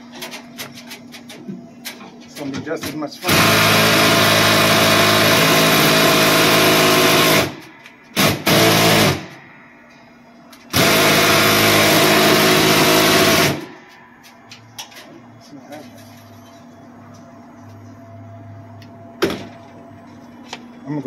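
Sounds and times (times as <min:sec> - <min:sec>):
cordless drill motor bursts: 0:03.3 - 0:09.3, 0:10.7 - 0:13.7.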